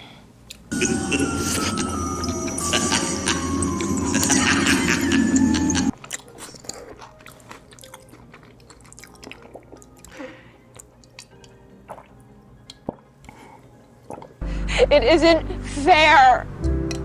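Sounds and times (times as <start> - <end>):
person chewing food: 0.5 - 2.6, 5.9 - 14.4
background music: 0.7 - 17.0
wet mouth noises: 1.3 - 1.9, 6.0 - 14.4.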